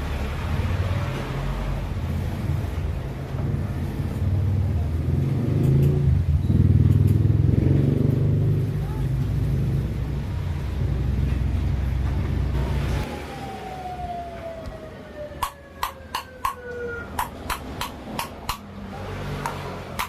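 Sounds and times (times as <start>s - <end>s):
exhaust fan motor humming: 2.0s - 13.1s.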